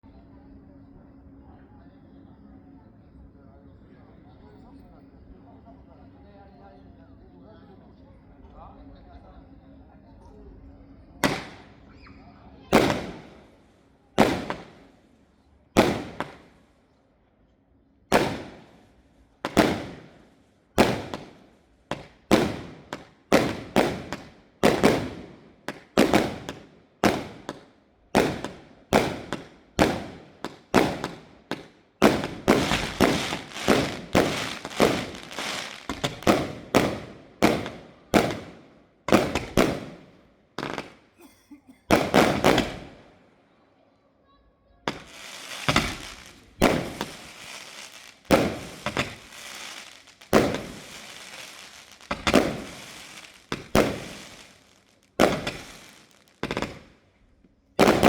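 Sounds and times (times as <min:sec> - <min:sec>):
firework bangs: 0:11.2 - 0:11.9, 0:12.6 - 0:15.0, 0:15.7 - 0:16.6, 0:18.1 - 0:41.2, 0:41.9 - 0:43.3, 0:44.9 - 0:57.0, 0:57.8 - 0:58.0.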